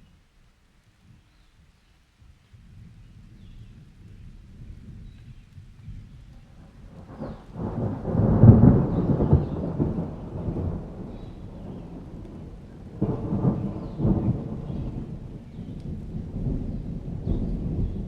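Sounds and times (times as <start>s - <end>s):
steady rain: 0.0s - 18.0s
rolling thunder: 5.9s - 18.0s.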